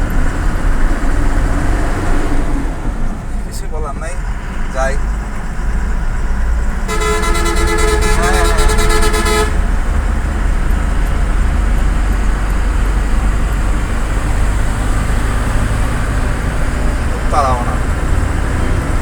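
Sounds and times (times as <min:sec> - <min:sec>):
truck engine and road rumble: 0:00.0 - 0:19.0
truck horn: 0:06.8 - 0:10.5.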